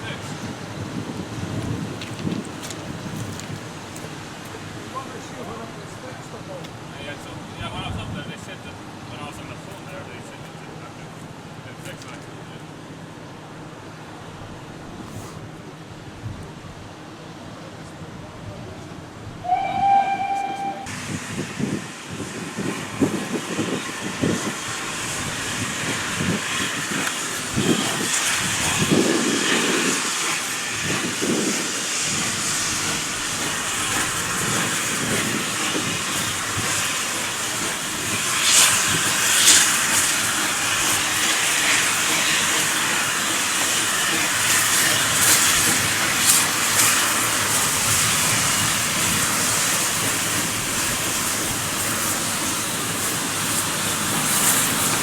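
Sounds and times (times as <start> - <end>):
steam locomotive hissing: 19.4 - 55.0.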